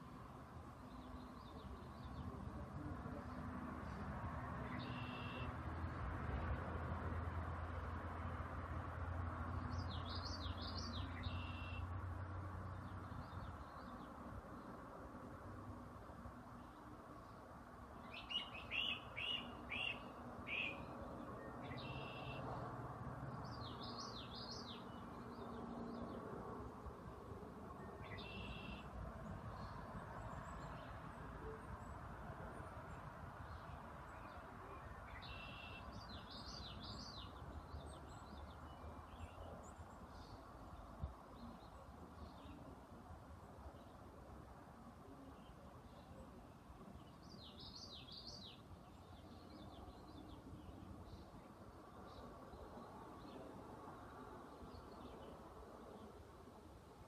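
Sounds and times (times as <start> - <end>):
small bird chirping: 18.0 - 20.9.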